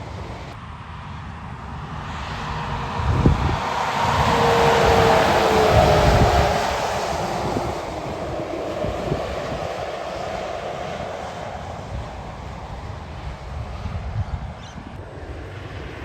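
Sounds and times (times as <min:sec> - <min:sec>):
truck engine passing: 0:02.1 - 0:13.0
tyre and wind noise: 0:02.5 - 0:16.0.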